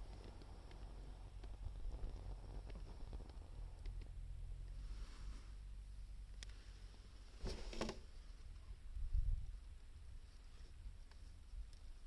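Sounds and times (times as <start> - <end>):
wood fire crackling: 0.0 - 4.2
low steady rumble: 0.0 - 12.0.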